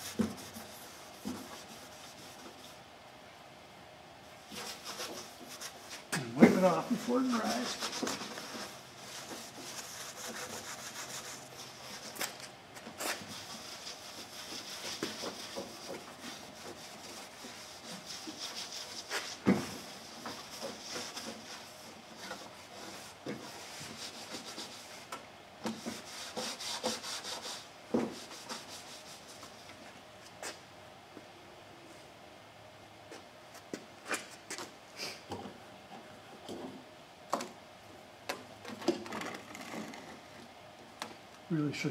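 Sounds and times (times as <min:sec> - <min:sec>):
cloth rag rubbing fiberglass: 0:04.5 - 0:12.2, 0:13.0 - 0:25.1, 0:25.7 - 0:29.6.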